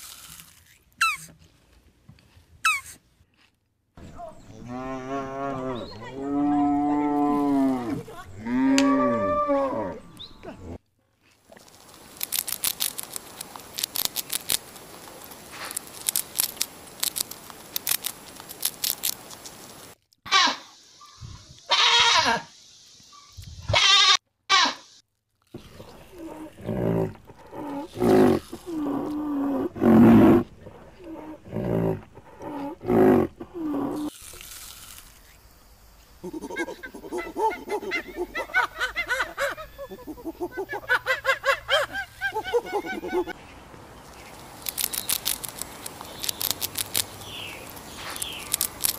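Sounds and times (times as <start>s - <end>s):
short shrill animal calls: 1.0s - 1.3s, 2.6s - 3.0s, 20.3s - 22.4s, 23.7s - 25.0s
low pitched animal calls: 4.4s - 10.8s, 25.6s - 34.1s
animal rapid clicking: 11.7s - 19.6s, 44.6s - 48.9s
high animal chattering: 25.6s - 34.1s, 36.2s - 43.4s.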